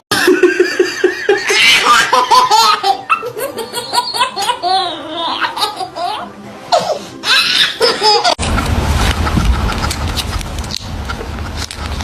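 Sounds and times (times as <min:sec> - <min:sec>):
hearty laughter: 0:00.1 - 0:01.7.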